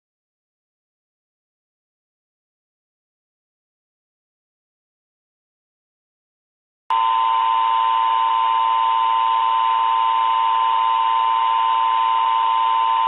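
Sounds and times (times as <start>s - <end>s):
loud steady alarm tone: 6.9s - 13.0s.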